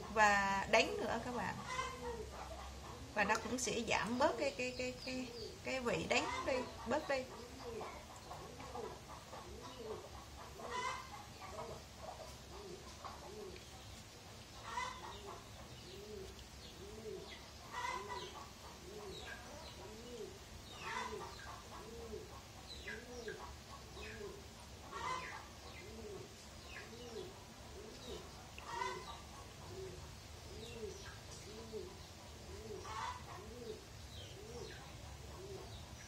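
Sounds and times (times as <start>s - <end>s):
bird calling: 14.6s - 35.8s.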